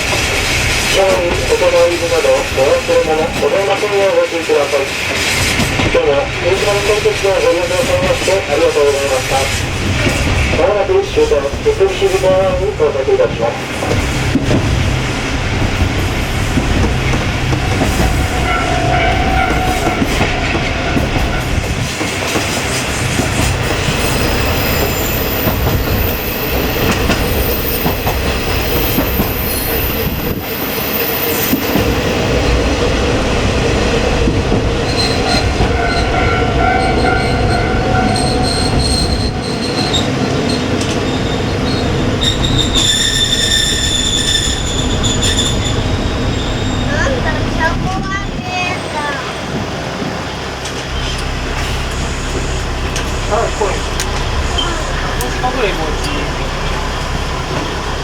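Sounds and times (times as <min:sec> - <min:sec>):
diesel railcar engine droning: 0:00.0 - 0:58.0
wheels rumbling on rail: 0:00.0 - 0:58.0
high wheel squeal: 0:17.4 - 0:21.7, 0:23.6 - 0:32.2, 0:34.8 - 0:47.2, 0:50.9 - 0:53.8.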